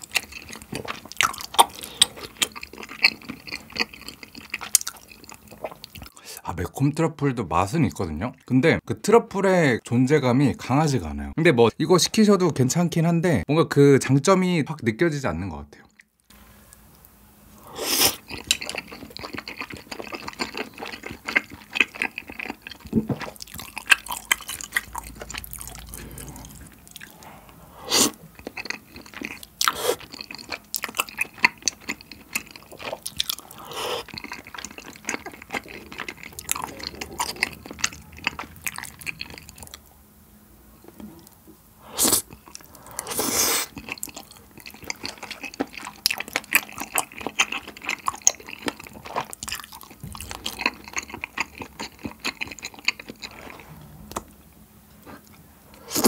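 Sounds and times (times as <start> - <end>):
wet chewing mouth sounds: 0.0 - 6.2, 17.7 - 39.9, 40.9 - 54.4
slurping: 17.6 - 39.9, 40.9 - 49.0, 49.8 - 54.4.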